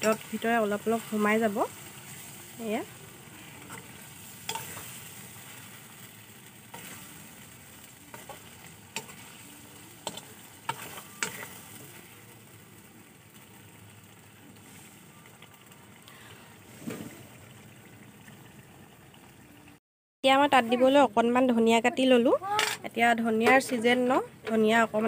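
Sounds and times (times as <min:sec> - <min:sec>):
dumplings sizzling in gravy: 0:00.0 - 0:19.6
metal spatula scraping pan: 0:03.4 - 0:05.4, 0:08.1 - 0:11.9.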